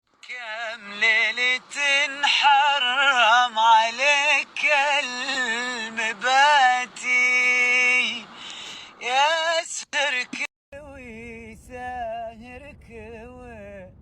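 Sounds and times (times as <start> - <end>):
man singing: 0.2 - 14.0
singer breathing: 8.2 - 9.0.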